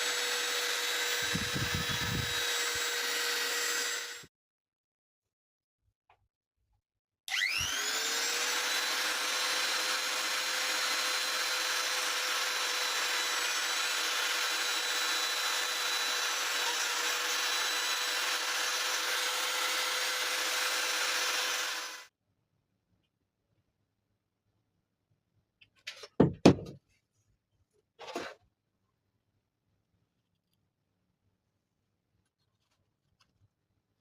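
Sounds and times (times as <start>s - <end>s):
small electric motor whining: 0.0s - 4.3s, 7.3s - 22.1s.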